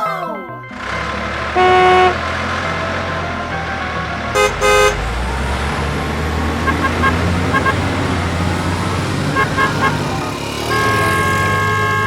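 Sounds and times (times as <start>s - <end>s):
horn tooting: 0.7s - 12.0s
vehicle engine running: 0.7s - 12.0s.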